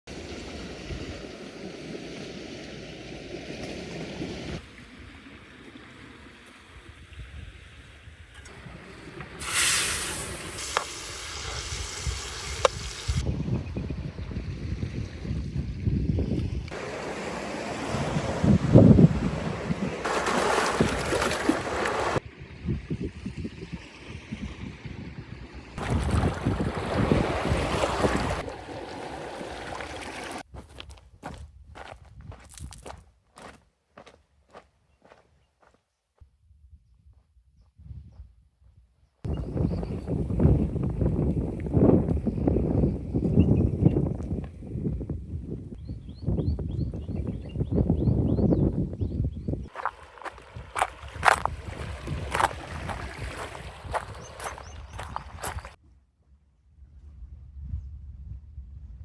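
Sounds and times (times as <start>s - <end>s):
water rushing: 0.1s - 6.7s, 16.7s - 22.2s, 25.8s - 30.4s, 49.7s - 55.8s
outdoor ambience: 0.1s - 15.4s
wind buffeting microphone: 6.7s - 33.5s, 39.3s - 55.8s, 56.8s - 59.0s
loud hiss: 9.4s - 13.2s.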